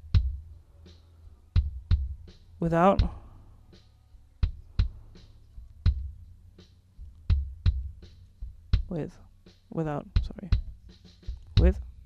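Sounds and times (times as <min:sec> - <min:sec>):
kick drum thumps: 0:00.0 - 0:00.5, 0:01.6 - 0:03.3, 0:04.4 - 0:05.0, 0:05.7 - 0:06.2, 0:07.0 - 0:09.1, 0:10.1 - 0:12.0
faint drum kit ticks: 0:00.0 - 0:00.6, 0:01.4 - 0:03.2, 0:04.2 - 0:12.0.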